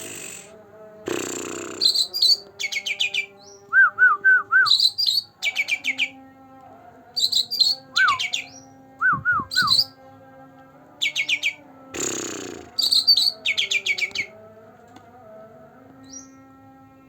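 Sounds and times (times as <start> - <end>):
harsh rasping bird note: 0.0 - 2.4, 12.0 - 13.4
bird chirping and whistling: 1.8 - 3.3, 4.5 - 6.1, 7.2 - 9.9, 12.8 - 14.3.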